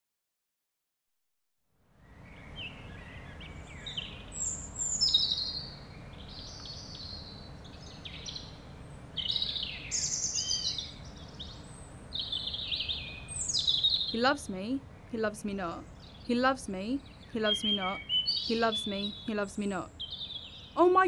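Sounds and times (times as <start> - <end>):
birds chirping and trilling: 2.0 - 21.0
low outdoor rumble: 5.6 - 21.0.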